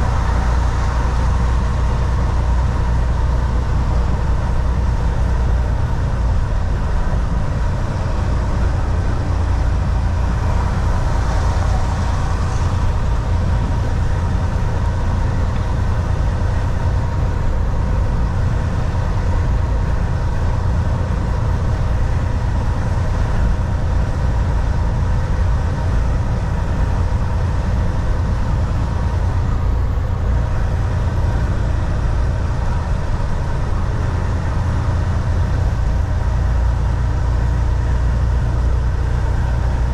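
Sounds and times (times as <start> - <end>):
truck engine and road drone: 0.0 - 39.9.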